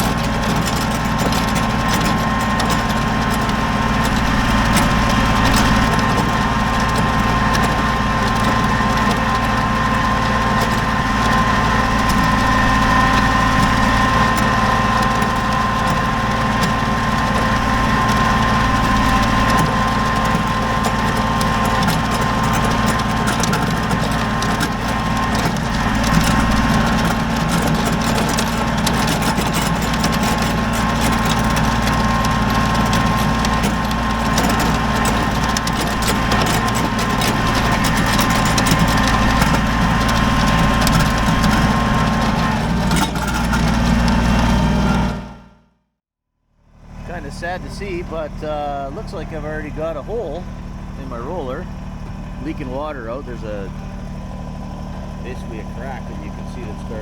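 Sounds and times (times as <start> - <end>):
tractor diesel engine running: 0.0 - 45.6, 46.6 - 57.0.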